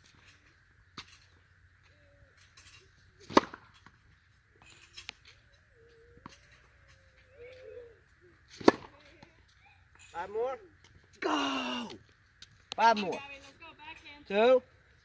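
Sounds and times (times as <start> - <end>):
tennis racquet striking ball: 3.2 - 4.0, 8.6 - 9.2.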